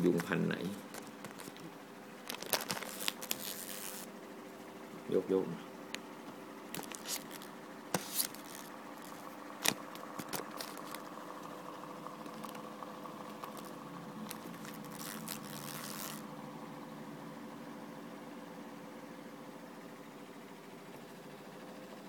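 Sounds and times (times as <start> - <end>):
machine hum: 0.0 - 22.0
clicks and scrapes: 6.8 - 11.1.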